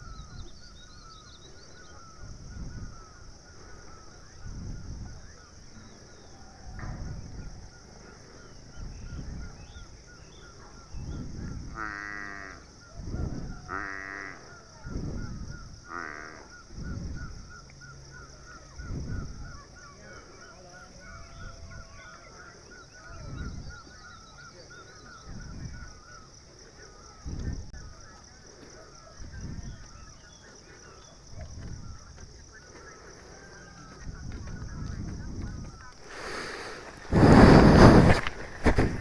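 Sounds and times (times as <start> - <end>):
steady high hiss: 36.0 - 39.0.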